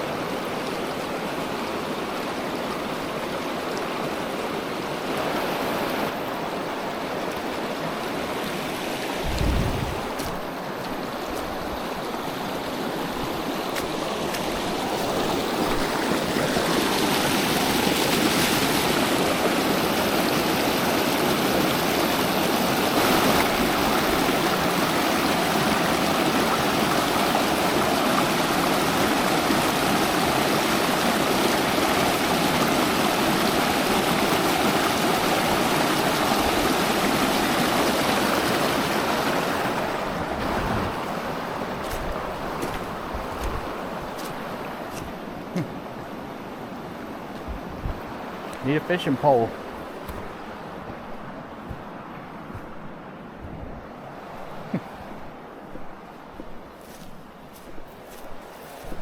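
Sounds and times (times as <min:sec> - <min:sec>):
river water rushing: 0:00.0 - 0:59.0
brief low thump: 0:09.2 - 0:10.4.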